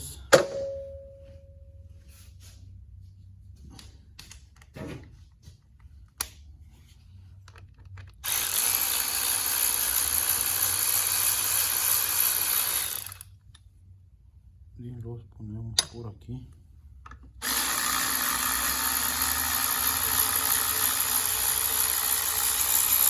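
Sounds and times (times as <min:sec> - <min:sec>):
tool handling clicks and knocks: 0:03.7 - 0:06.4, 0:07.4 - 0:08.2, 0:17.0 - 0:17.4
power drill running: 0:08.2 - 0:13.3, 0:17.4 - 0:23.0.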